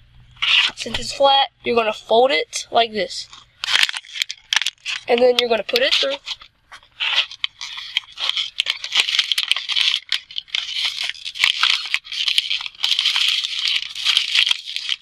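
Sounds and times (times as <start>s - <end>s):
plastic bottle crinkling: 3.3s - 15.0s.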